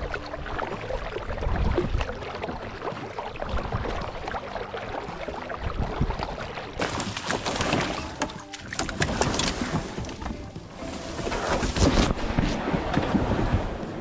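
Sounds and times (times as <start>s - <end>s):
wind rumbling on microphone: 0.0s - 4.4s, 5.4s - 7.1s, 9.0s - 14.0s
paddle strokes splashing in water: 0.0s - 14.0s.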